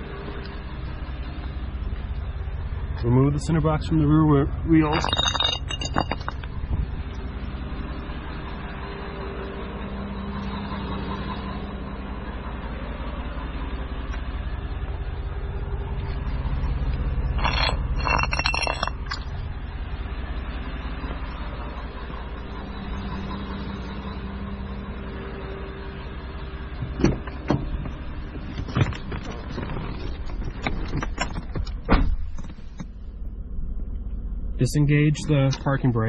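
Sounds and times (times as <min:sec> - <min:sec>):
engine idling: 0:00.0 - 0:36.0
metallic jingle: 0:04.8 - 0:06.5, 0:17.4 - 0:19.3.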